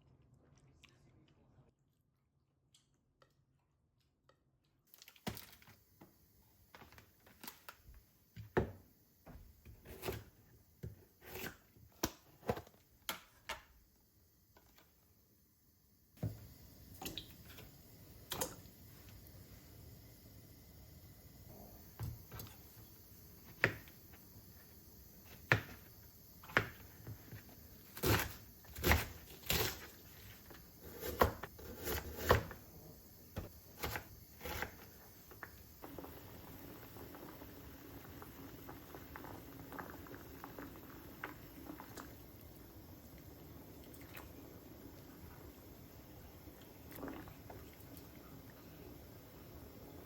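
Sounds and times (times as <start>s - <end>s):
steady hiss with crackles: 11.4s - 50.0s.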